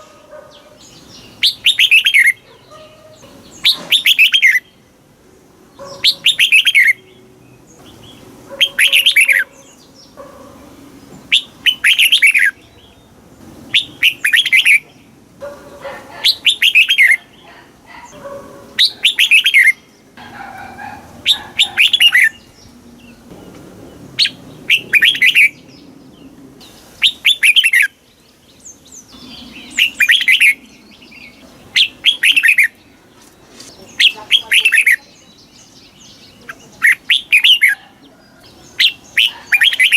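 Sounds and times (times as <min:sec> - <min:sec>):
bird singing whistled phrases: 0:01.4 - 0:02.4, 0:06.0 - 0:07.1, 0:16.2 - 0:17.2, 0:18.8 - 0:19.9, 0:24.2 - 0:25.6, 0:27.0 - 0:27.9, 0:29.2 - 0:30.6, 0:31.2 - 0:32.8.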